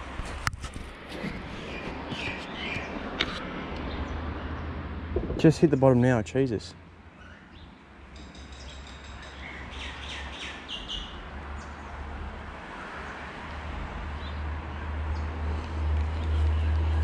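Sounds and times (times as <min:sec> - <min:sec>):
small birds chirping: 0:01.5 - 0:03.0, 0:08.4 - 0:12.0
steady low rumble: 0:05.0 - 0:06.2.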